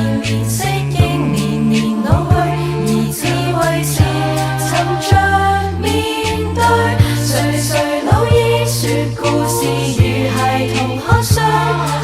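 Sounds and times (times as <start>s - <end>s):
vocal group singing harmonies: 0.0s - 12.0s
low thumping beats: 0.2s - 12.0s
sung bass note: 0.6s - 3.0s.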